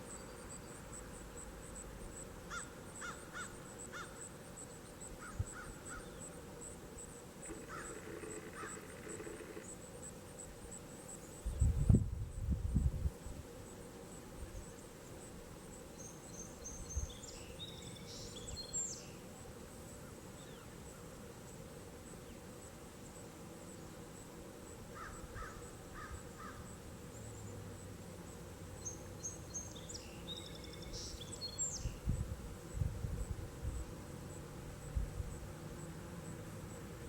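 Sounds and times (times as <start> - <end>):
high insect buzz: 0.0 - 37.0
songbird warbling: 7.5 - 9.6.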